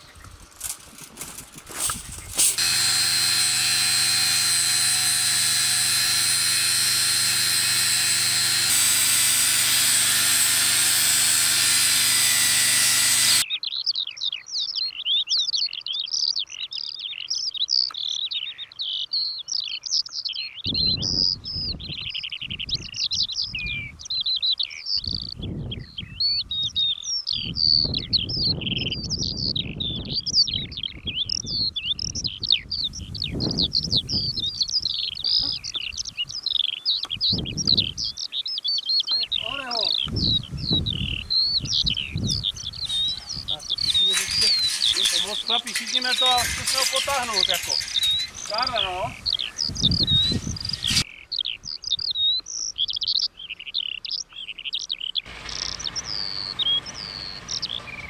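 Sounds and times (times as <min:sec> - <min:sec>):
birds chirping and trilling: 0:00.0 - 0:58.0
loud steady humming noise: 0:02.3 - 0:13.4, 0:42.9 - 0:48.5.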